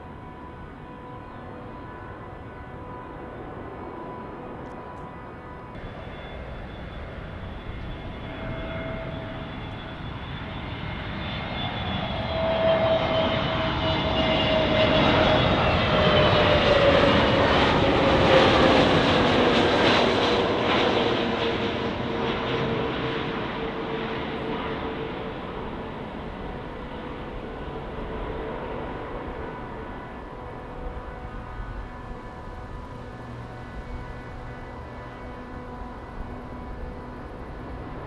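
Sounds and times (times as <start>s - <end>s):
jet airliner passing: 0.0s - 38.0s.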